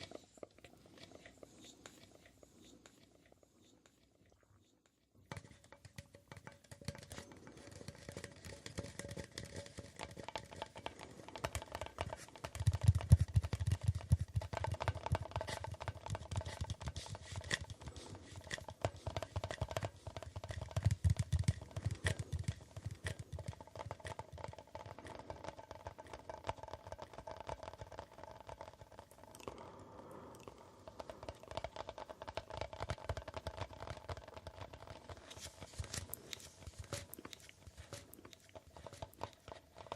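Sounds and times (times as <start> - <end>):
rapid tapping on hard object: 5.3 - 29.5, 30.9 - 39.9.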